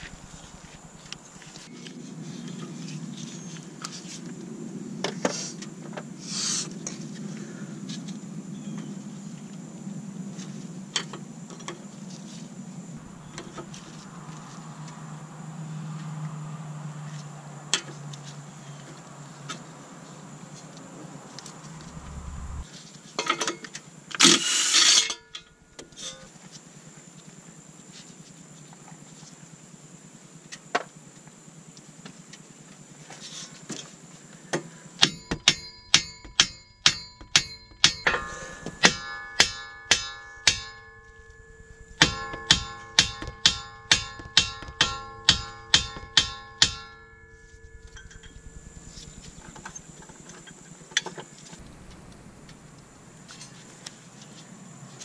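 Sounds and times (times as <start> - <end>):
harsh burst of noise: 0.0 - 1.7, 21.5 - 22.7, 40.2 - 54.2
hammer ringing on steel: 35.0 - 48.2.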